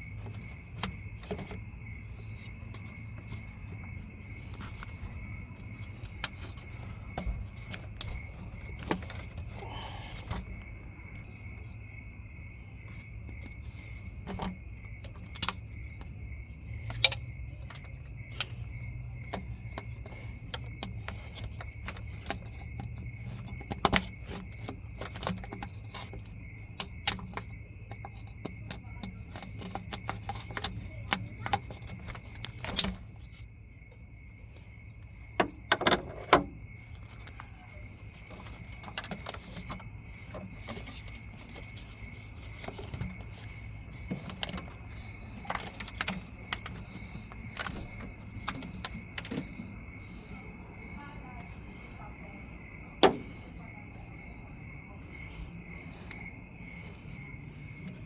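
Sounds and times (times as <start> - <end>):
metal tools clinking and tapping: 16.7 - 33.4, 35.4 - 49.7.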